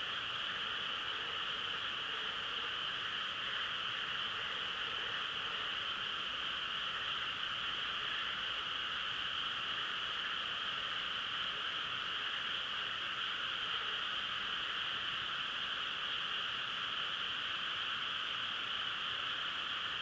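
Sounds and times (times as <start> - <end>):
frogs chorus droning: 0.0 - 20.0.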